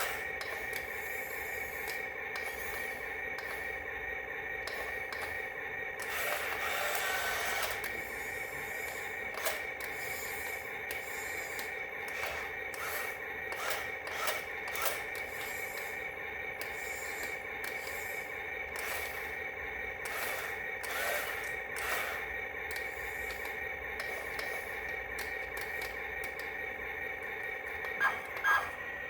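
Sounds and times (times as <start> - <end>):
small electric motor whining: 0.0 - 3.8, 6.0 - 16.0, 16.6 - 26.6, 27.2 - 29.0.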